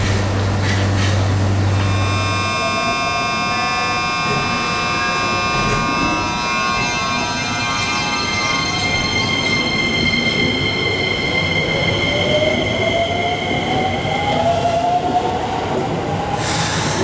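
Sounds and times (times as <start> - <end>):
low train hum: 0.0 - 17.0
high whining motor tones: 1.7 - 9.9.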